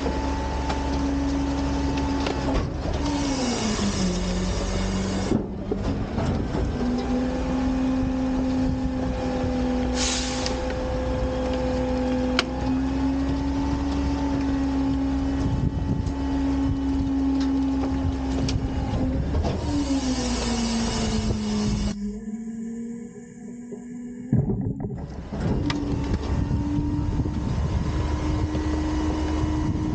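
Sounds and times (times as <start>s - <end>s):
hydraulics lifting a bin: 0.0s - 22.1s, 23.5s - 29.9s
diesel engine revving: 0.0s - 29.9s
air hiss: 10.0s - 10.6s, 19.7s - 22.0s
sharp clunks: 24.3s - 25.8s.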